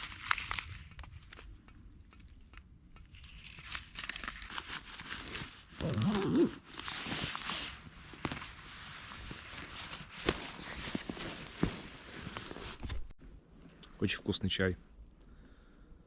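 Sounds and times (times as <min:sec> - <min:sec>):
rustling and crinkling: 0:00.0 - 0:13.8.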